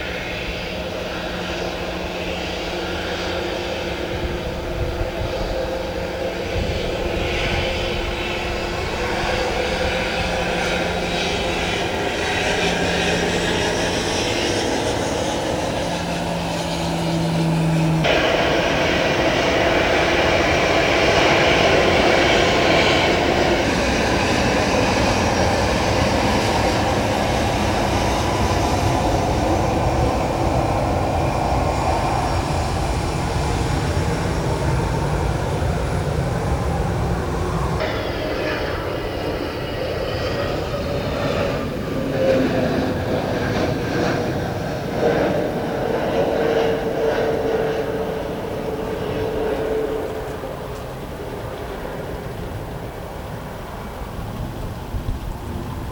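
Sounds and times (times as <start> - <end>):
airliner engines droning: 0.0 - 55.9
low hum: 0.2 - 44.4.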